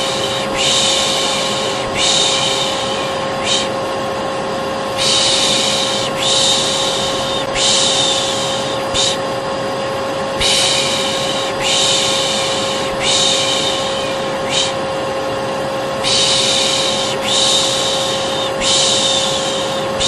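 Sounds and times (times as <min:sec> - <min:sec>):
person shushing: 0:00.0 - 0:03.8, 0:05.0 - 0:09.3, 0:10.4 - 0:14.9, 0:16.0 - 0:20.0
vacuum cleaner hum: 0:00.0 - 0:20.0.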